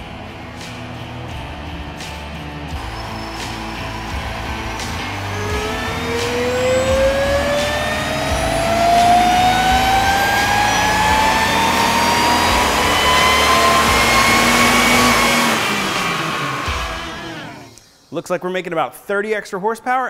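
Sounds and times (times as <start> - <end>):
engine revving: 2.1 - 17.8
supercharger whine: 2.7 - 17.8.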